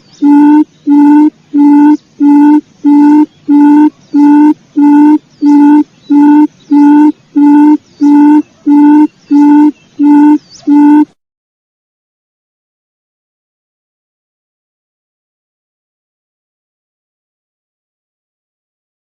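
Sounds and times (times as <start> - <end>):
faint high bird chirps: 0.0 - 11.2
quail lure call hooting: 0.2 - 11.1.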